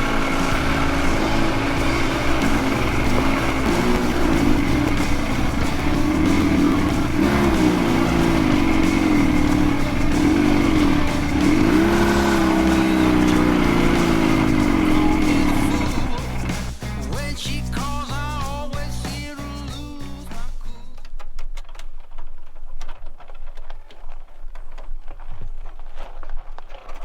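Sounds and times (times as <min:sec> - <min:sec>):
motorcycle engine revving: 0:00.0 - 0:17.3.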